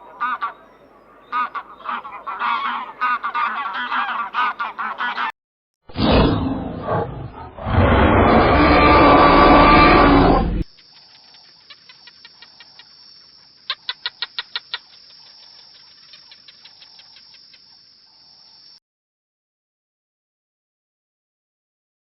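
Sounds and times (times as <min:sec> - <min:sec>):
loud rough animal roar: 0:06.0 - 0:10.6.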